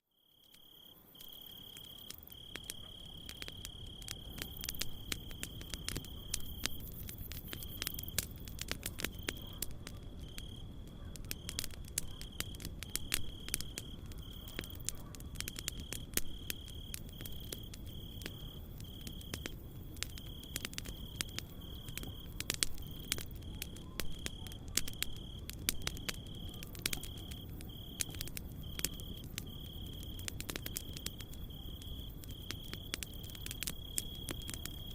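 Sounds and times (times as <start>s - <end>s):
cricket chirping: 0.0s - 34.9s
campfire crackling and popping: 0.3s - 34.9s.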